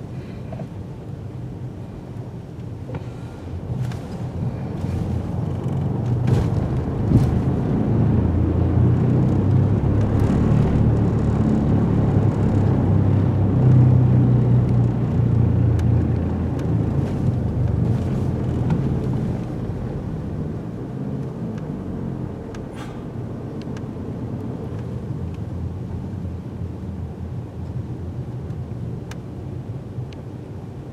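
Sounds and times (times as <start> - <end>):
engine rumble: 0.0 - 30.9.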